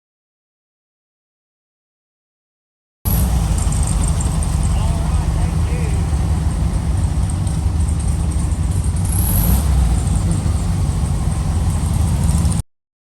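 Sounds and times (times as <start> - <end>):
car engine running: 3.1 - 12.6
road noise: 3.1 - 12.6.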